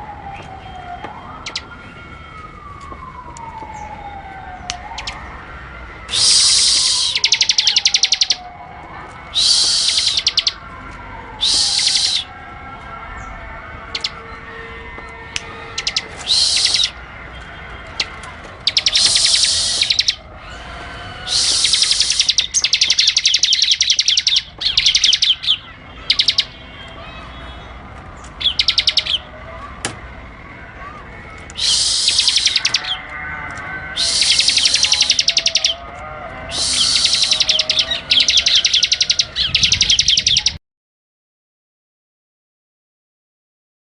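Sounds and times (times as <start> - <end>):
bird singing buzzy high trill: 6.1 - 8.4, 9.4 - 10.6, 11.4 - 12.3, 15.8 - 17.0, 18.6 - 26.6, 28.4 - 29.3, 31.6 - 33.0, 34.0 - 35.8, 36.5 - 40.6
lower bird warbling: 6.1 - 8.5, 9.4 - 10.6, 11.4 - 12.3, 15.7 - 17.0, 18.6 - 26.6, 28.4 - 29.3, 31.6 - 40.6.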